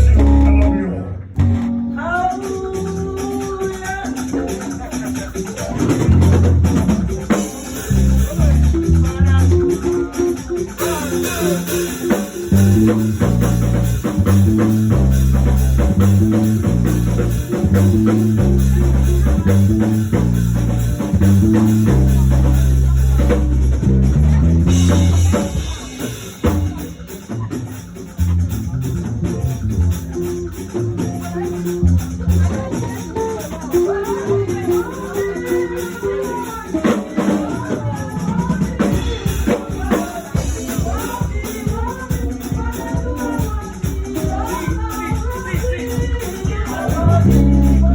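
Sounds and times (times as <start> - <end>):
heavy drum hits: 0.0 - 2.2, 6.0 - 7.3, 12.6 - 27.0
voices singing: 0.0 - 27.0, 31.3 - 47.9
bass guitar: 0.0 - 36.3, 46.9 - 47.9
electric guitar: 0.0 - 44.2
drum kit playing a steady beat: 0.0 - 47.9.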